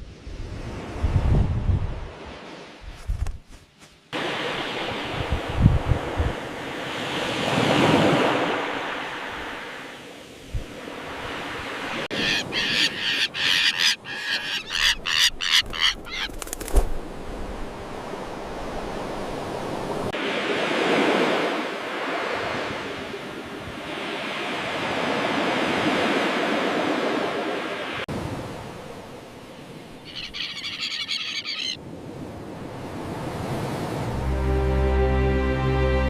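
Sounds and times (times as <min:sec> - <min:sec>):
surf washing in: 0:04.1 - 0:15.2, 0:16.2 - 0:36.0
terns giving harsh calls: 0:12.0 - 0:16.4, 0:30.0 - 0:31.8.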